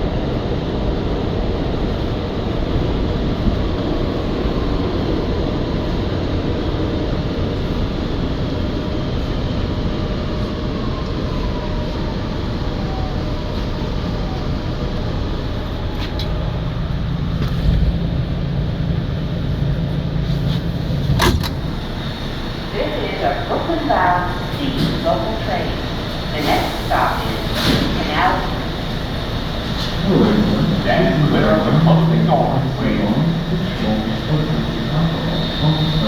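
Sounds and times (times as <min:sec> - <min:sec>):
subway train rumble and hiss: 0:00.0 - 0:36.0
low steady hum: 0:16.9 - 0:36.0
faint falling whine: 0:21.5 - 0:36.0.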